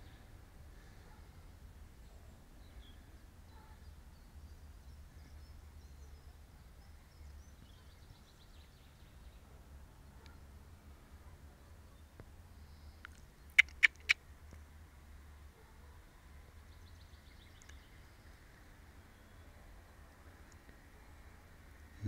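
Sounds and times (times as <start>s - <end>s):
faint bird chirps: 0.0s - 9.4s, 11.2s - 14.2s.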